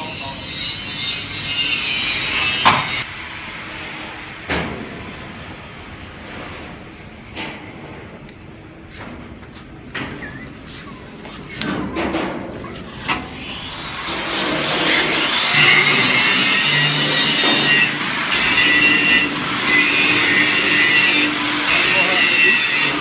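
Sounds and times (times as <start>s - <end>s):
angle grinder grinding metal: 0.0s - 3.1s, 12.6s - 23.0s.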